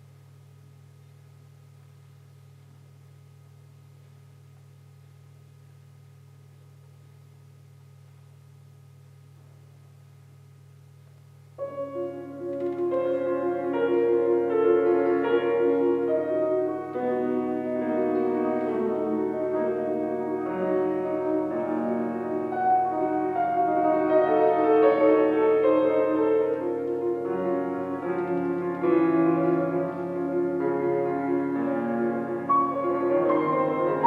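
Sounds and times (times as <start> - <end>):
solo piano classical piece: 11.6 - 34.0.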